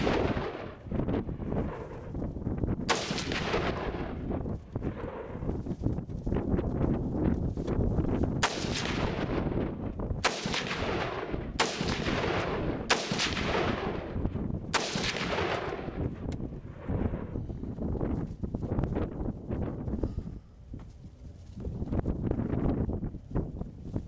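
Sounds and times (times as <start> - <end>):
rifle shots echoing: 0.0 - 2.1, 2.8 - 5.5, 8.4 - 17.3
wind rumble on microphone: 0.0 - 24.0.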